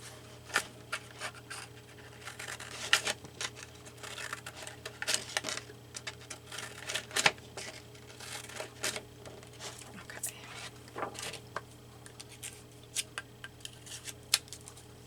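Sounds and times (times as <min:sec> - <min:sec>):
scissors snipping paper: 0:00.5 - 0:07.3.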